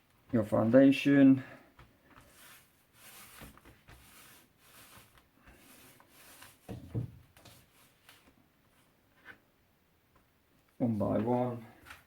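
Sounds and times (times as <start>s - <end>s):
paint roller scratching on plastic: 1.8s - 8.4s.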